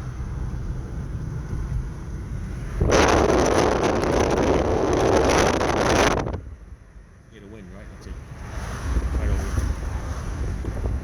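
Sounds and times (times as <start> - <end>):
road rumble inside car: 0.0 - 11.0
wind noise rushing: 1.3 - 6.5, 8.4 - 11.0.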